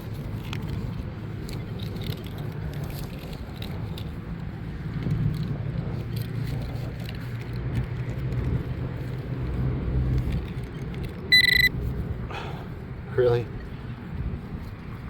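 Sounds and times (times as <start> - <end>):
wind buffeting microphone: 0.0 - 15.0
metal detector beep: 11.3 - 11.7.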